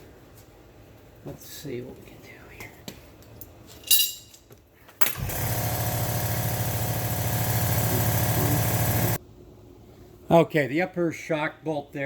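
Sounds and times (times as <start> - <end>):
pneumatic wrench running: 5.0 - 9.2.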